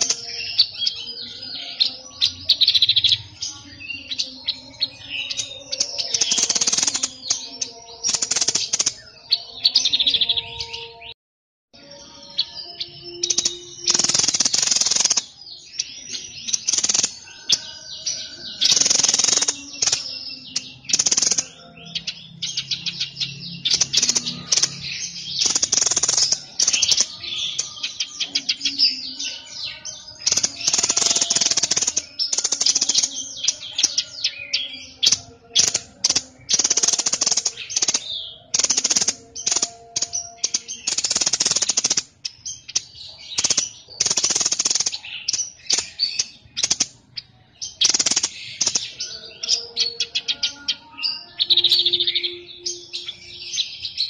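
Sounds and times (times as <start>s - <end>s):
songbird chattering trills: 12.4s - 54.0s.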